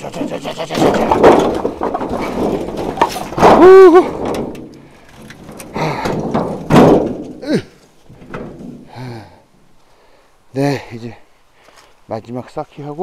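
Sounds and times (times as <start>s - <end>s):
logs clattering in handcart: 0.0s - 9.0s
person grunting with effort: 3.4s - 4.3s, 5.7s - 6.3s, 7.4s - 7.8s, 8.9s - 9.4s.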